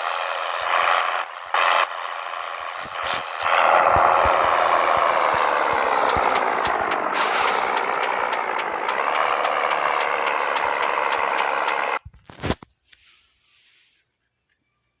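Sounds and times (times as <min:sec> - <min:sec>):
diesel truck engine running: 0:00.0 - 0:12.0
fast regular ticking: 0:02.9 - 0:12.0.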